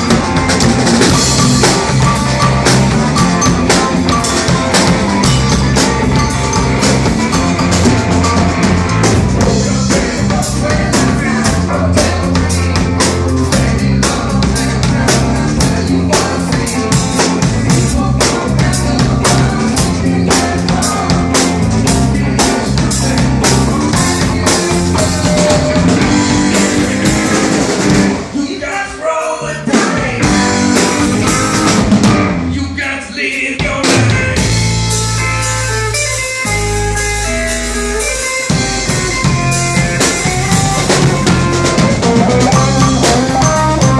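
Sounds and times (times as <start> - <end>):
live rock band playing: 0.0 - 43.9.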